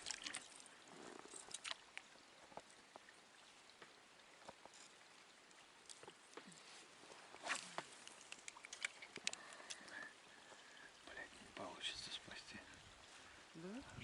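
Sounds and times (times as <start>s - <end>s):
faint hiss: 6.3s - 14.0s.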